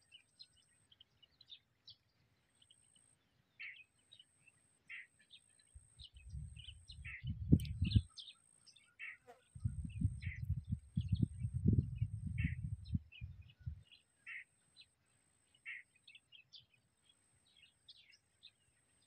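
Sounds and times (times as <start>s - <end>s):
small birds chirping: 0.0s - 19.0s
loud low rumble on microphone: 6.1s - 8.1s, 9.6s - 13.8s.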